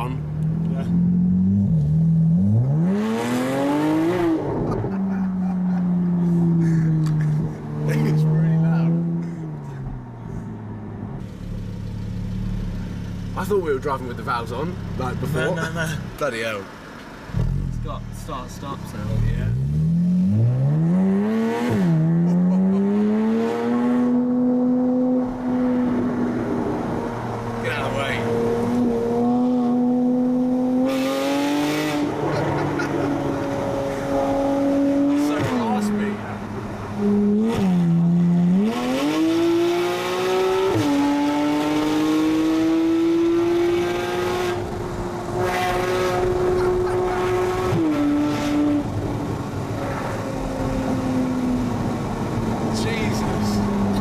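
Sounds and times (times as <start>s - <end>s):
car engine accelerating from inside: 19.1s - 54.0s.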